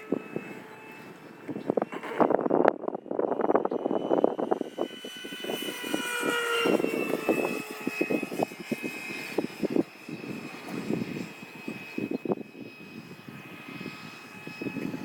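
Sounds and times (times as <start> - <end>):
model jet fan whine: 0.0 - 15.0
wind buffeting microphone: 0.0 - 15.0.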